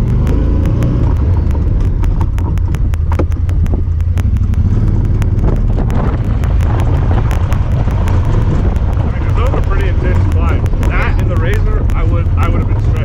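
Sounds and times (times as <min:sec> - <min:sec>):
camera ticking: 0:00.0 - 0:13.0
engine low rumble: 0:00.0 - 0:13.0.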